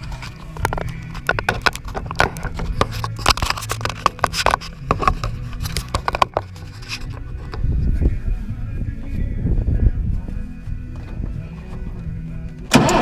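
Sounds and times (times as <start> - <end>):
diesel engine running: 10.2 - 13.0.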